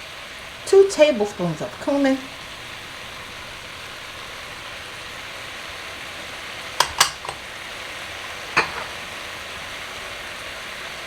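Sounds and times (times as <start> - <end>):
chicken sizzling in a pot: 0.0 - 11.0
metal utensil clinking on pot: 6.8 - 7.4, 8.6 - 9.0.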